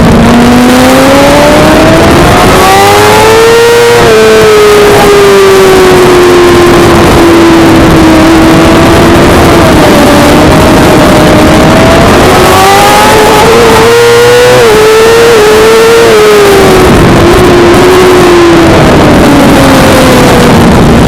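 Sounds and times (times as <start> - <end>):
motorcycle engine at high revs: 0.0 - 21.0.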